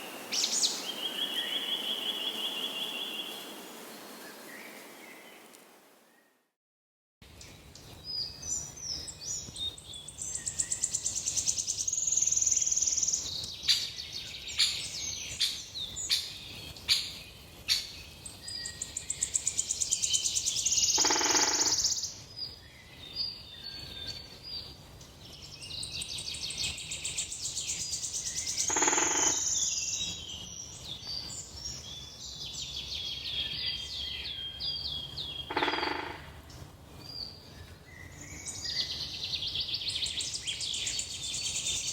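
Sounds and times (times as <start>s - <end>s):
songbirds singing and chirping: 0.0s - 6.3s, 7.2s - 41.9s
harsh buzzing bird call: 28.7s - 29.5s.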